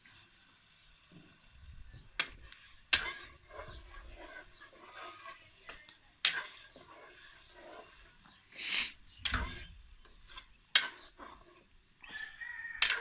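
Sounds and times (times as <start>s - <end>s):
short hiss: 8.5s - 9.0s.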